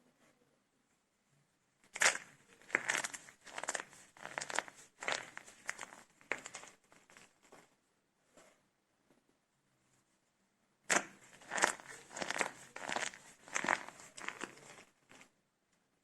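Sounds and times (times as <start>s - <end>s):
dry soap crunching by hand: 1.9s - 7.5s, 10.9s - 15.3s.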